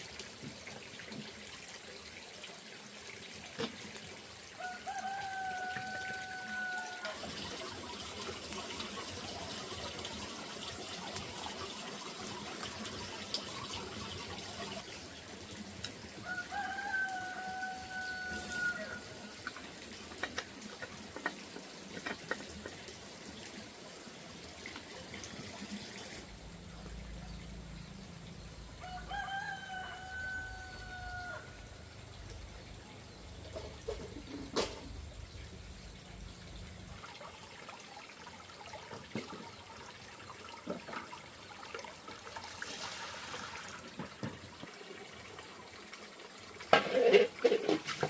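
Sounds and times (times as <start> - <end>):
rooster crowing: 4.6 - 7.2, 16.2 - 19.2, 28.8 - 31.8.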